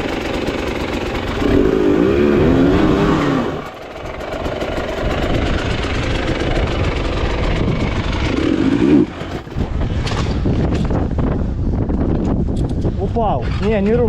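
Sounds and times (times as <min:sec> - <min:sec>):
dirt bike engine revving: 0:00.0 - 0:10.3.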